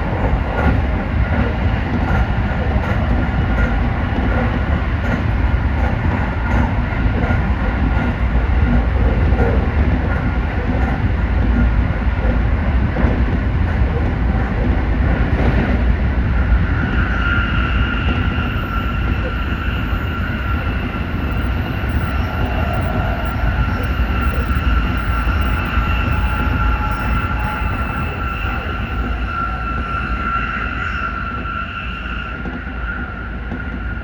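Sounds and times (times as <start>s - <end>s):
train wheels rumbling on rail: 0.0s - 34.0s
high motor whine: 16.6s - 32.5s.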